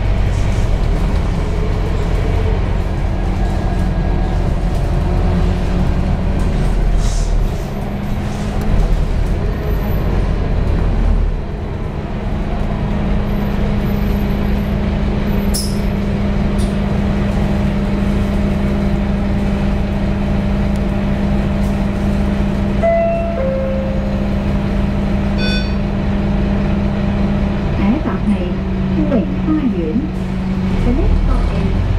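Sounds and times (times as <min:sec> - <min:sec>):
bus engine humming: 0:00.0 - 0:31.9
short high beep: 0:25.4 - 0:25.8.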